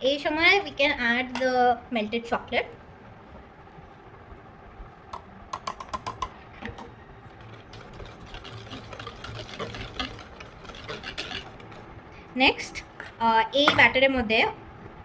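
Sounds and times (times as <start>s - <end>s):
utensil tapping mixing bowl: 5.6s - 11.9s
stirring clicks and scrapes: 6.1s - 11.9s.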